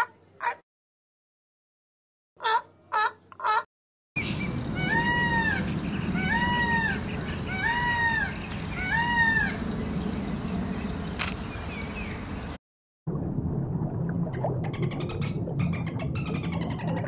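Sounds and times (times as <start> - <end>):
peafowl calling: 4.2 - 12.5
faint click: 11.2 - 11.4.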